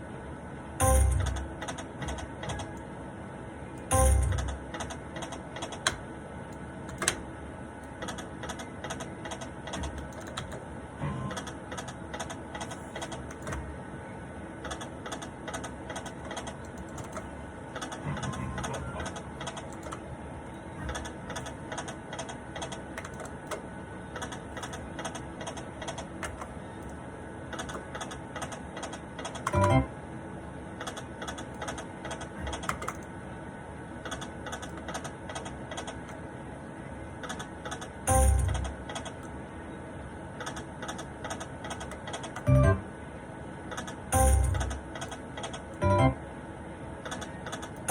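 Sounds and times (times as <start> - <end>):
faint electronic tones: 42.5 - 42.9, 45.8 - 46.2.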